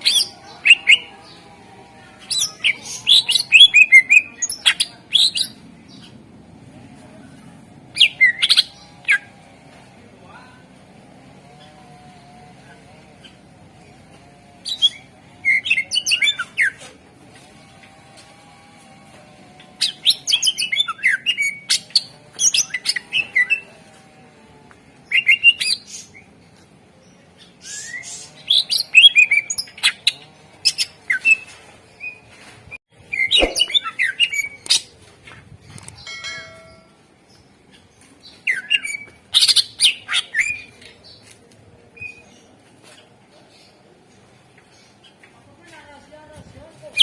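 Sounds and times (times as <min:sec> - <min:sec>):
bird singing rapid chattering: 0:33.1 - 0:34.9.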